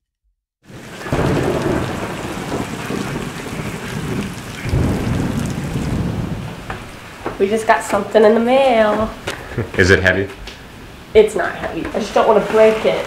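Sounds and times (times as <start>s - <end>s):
heavy rain pouring: 0.6s - 13.0s
low thunder rumbling: 0.7s - 9.2s.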